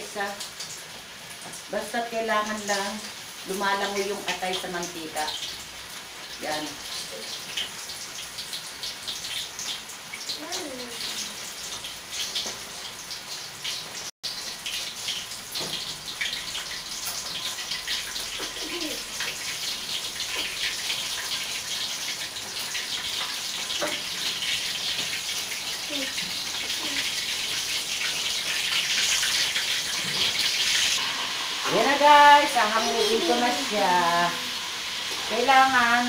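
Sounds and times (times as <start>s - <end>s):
liver deep-frying in oil: 0.0s - 36.0s.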